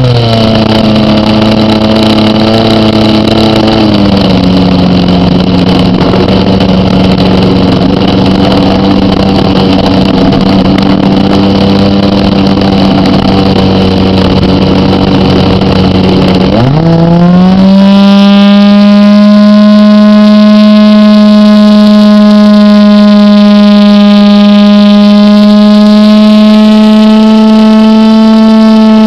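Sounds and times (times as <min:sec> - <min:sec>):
model airplane engine running: 0:00.0 - 0:29.0.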